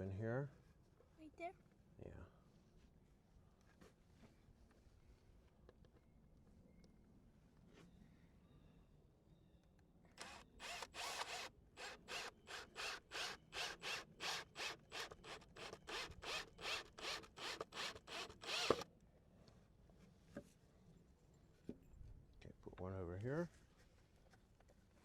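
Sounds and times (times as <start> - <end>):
screw rasping into wood: 10.2 - 18.8.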